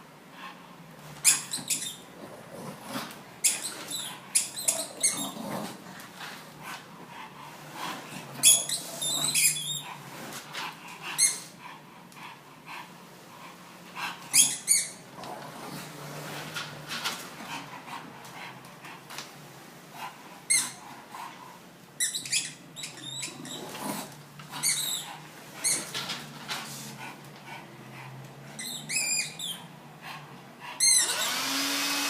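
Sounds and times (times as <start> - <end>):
squeaky ball squeaking: 1.2 - 2.0, 3.4 - 5.4, 22.0 - 23.6, 24.6 - 25.8, 28.6 - 29.7
dog noises: 1.2 - 16.8.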